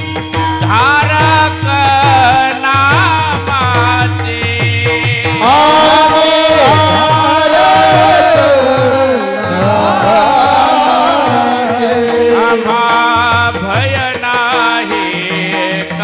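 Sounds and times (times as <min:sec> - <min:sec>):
person singing long gliding notes: 0:05.4 - 0:13.7.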